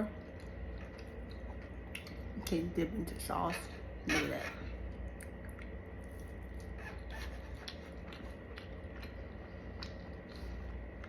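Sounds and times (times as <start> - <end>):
steady low hum: 0.0 - 11.0
person chewing food: 0.2 - 2.4, 4.9 - 11.0.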